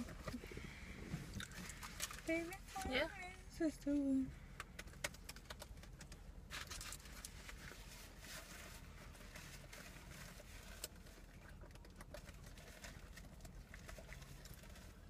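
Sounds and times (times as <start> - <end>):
car interior hum: 0.0 - 15.0
chewing food: 9.7 - 15.0.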